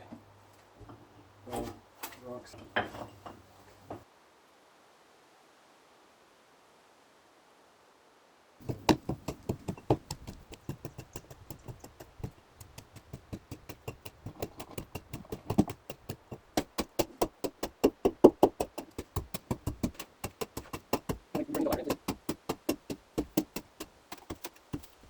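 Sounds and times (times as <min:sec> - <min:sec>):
rapid sharp knocks: 0:08.6 - 0:25.0.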